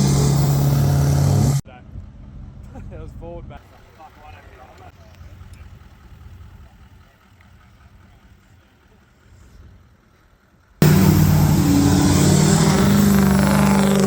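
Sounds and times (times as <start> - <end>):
vehicle engine rumbling: 0.0 - 2.7, 5.0 - 14.0
rushing noise: 10.8 - 14.0.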